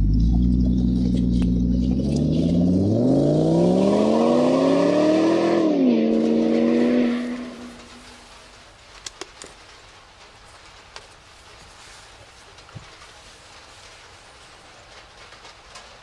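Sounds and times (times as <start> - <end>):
car engine accelerating: 0.0 - 8.5.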